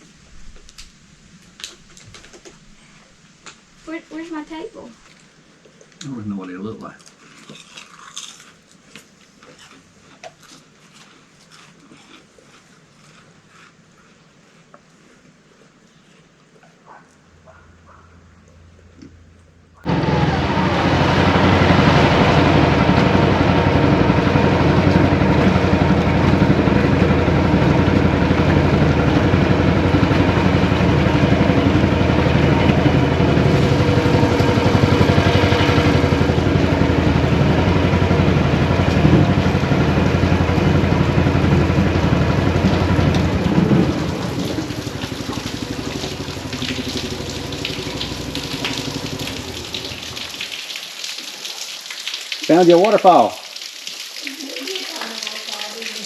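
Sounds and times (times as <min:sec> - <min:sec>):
wind: 0:00.0 - 0:52.5
small gasoline engine running: 0:19.8 - 0:50.5
water splashing: 0:19.8 - 0:56.0.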